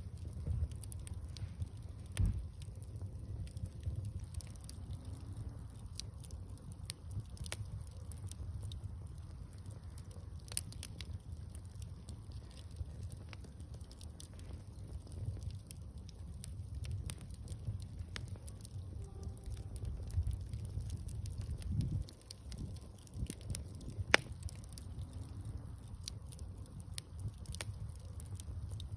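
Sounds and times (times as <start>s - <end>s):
bonfire crackling and popping: 0.0s - 28.9s
low steady rumble: 0.0s - 28.9s.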